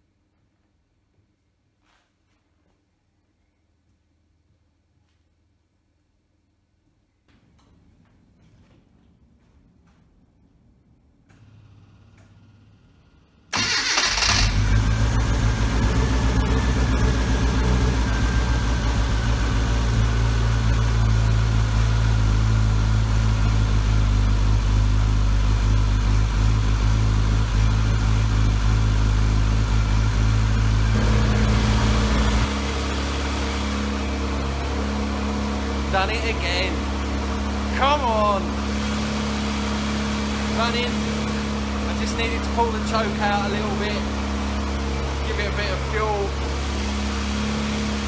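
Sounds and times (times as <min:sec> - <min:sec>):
car engine starting and running: 0:11.3 - 0:48.0.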